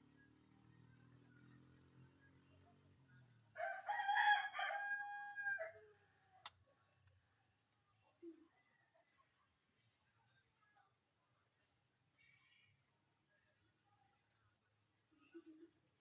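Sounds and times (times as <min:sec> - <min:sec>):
rooster crowing: 0:03.6 - 0:06.0.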